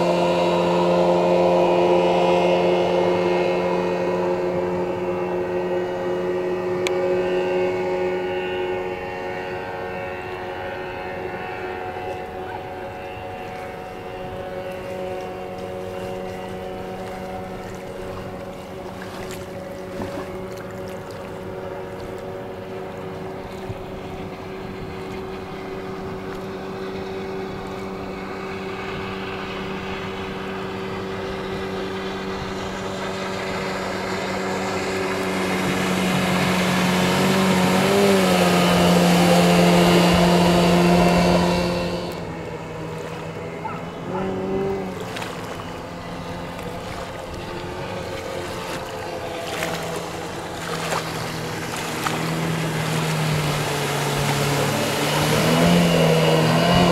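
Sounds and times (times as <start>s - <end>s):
outboard motor: 0.0s - 56.9s.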